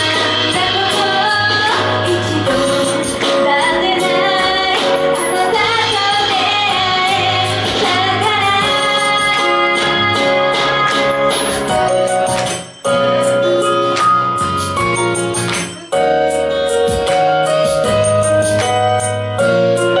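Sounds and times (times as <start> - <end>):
woman singing pop song: 0.0 - 12.0
sustained keyboard chords: 0.0 - 20.0.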